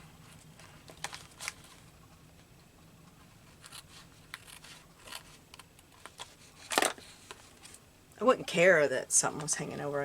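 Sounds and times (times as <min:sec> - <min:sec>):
paper rustling: 0:00.3 - 0:01.9.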